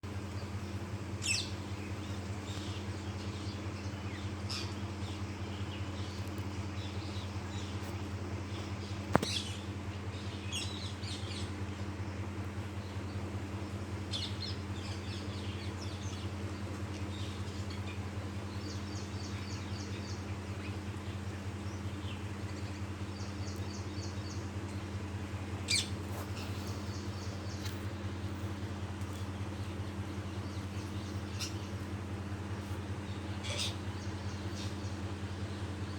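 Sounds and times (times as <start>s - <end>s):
steady low hum: 0.0s - 35.9s
parrots calling: 25.7s - 27.8s, 30.4s - 32.0s, 33.1s - 34.7s.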